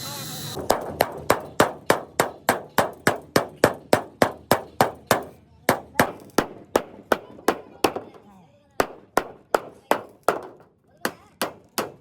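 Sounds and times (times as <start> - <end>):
hammer striking metal: 0.6 - 8.2.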